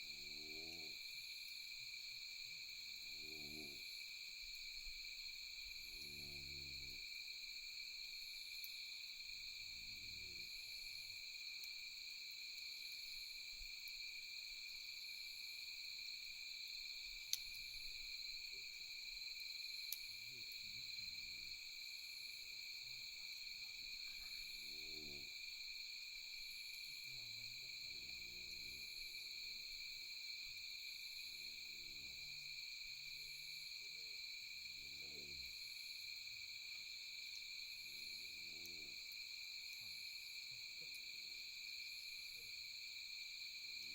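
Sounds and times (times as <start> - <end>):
crickets trilling: 0.0 - 43.9
campfire popping: 17.2 - 18.0, 19.8 - 20.1.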